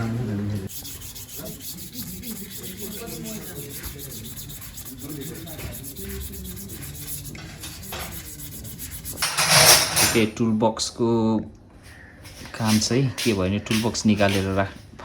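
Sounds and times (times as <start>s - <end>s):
sanding: 0.6s - 10.2s.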